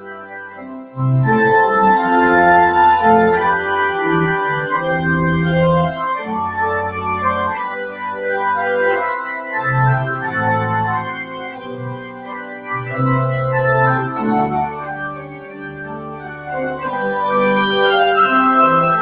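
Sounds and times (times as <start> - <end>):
church organ playing chords: 0.0 - 19.0.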